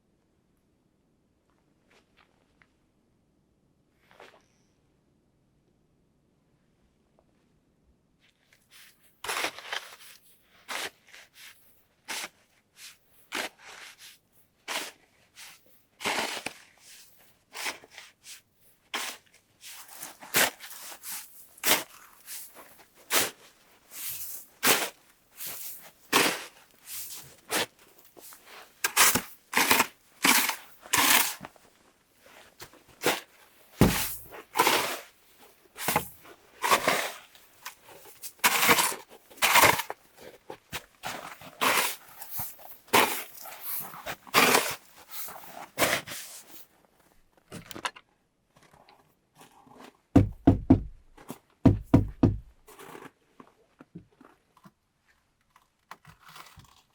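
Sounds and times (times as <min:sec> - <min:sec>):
footsteps crunching in snow: 0:31.8 - 0:34.7.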